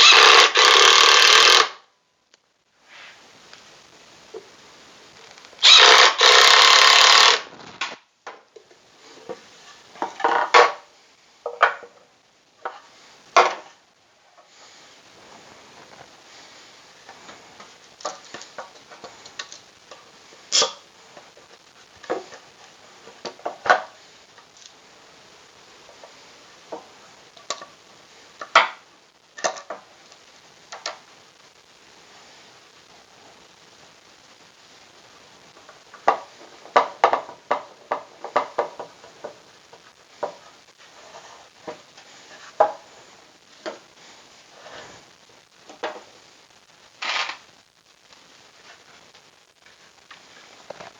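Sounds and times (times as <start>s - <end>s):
clicks and knocks of wooden parts: 29.4s - 29.9s, 35.6s - 40.5s.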